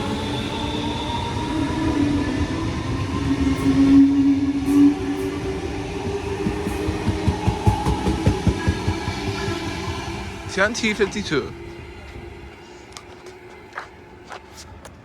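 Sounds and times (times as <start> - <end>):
train wheels rumbling on rails: 0.0 - 15.0
train motor hum: 4.6 - 15.0.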